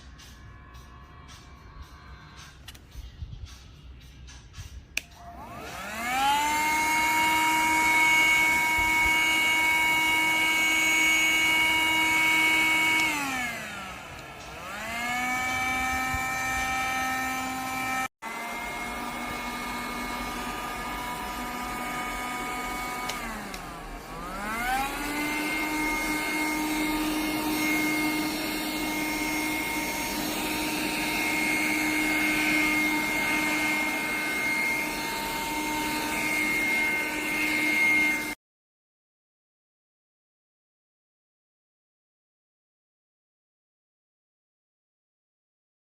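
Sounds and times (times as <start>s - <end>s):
vacuum cleaner motor whining: 5.2s - 38.4s.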